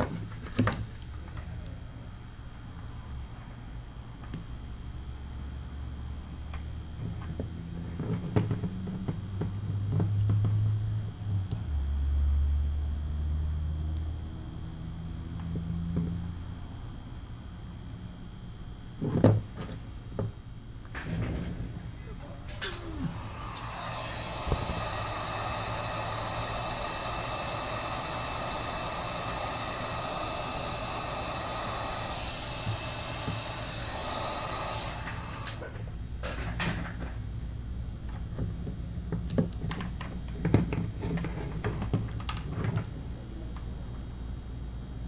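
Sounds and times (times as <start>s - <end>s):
heat gun blowing: 22.5s - 36.1s.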